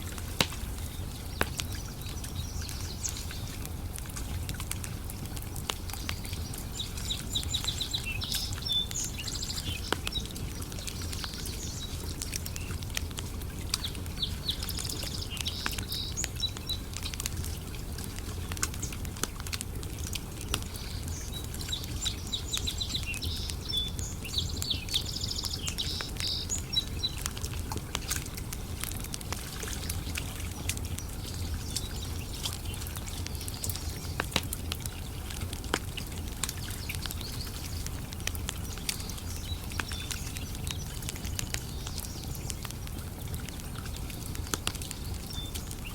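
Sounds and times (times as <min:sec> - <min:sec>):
campfire crackling: 0:00.0 - 0:45.9
bird singing high phrases: 0:14.2 - 0:16.9.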